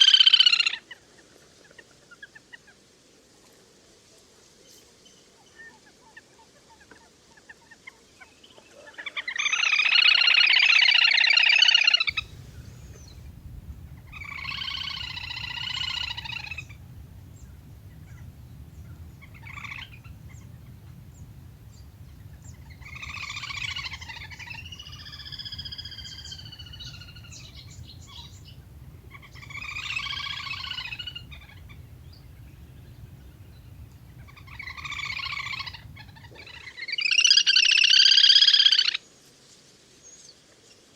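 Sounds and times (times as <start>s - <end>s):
low steady hum: 12.1s - 36.6s
whistling duck calls: 12.1s - 36.6s.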